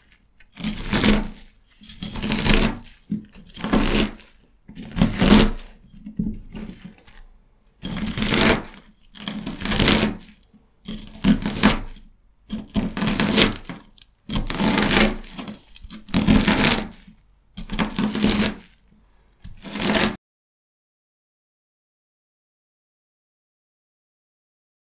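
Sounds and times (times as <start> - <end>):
knife cutting celery crunch: 0.0 - 18.8, 19.4 - 20.2.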